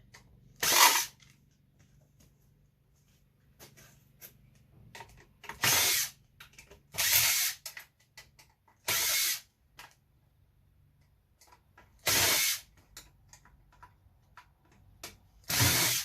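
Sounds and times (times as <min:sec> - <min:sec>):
power drill bursts: 0:12.0 - 0:12.7, 0:15.5 - 0:16.0.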